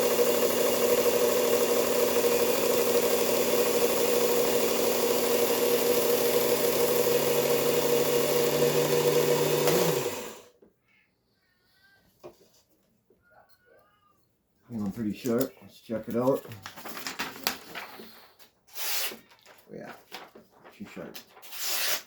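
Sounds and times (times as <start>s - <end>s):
belt grinder running: 0.0s - 10.5s
grinder winding down: 0.0s - 10.5s.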